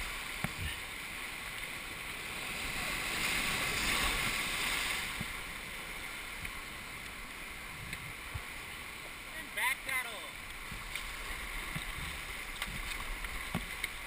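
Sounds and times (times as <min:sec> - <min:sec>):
rushing river water: 0:00.0 - 0:14.0.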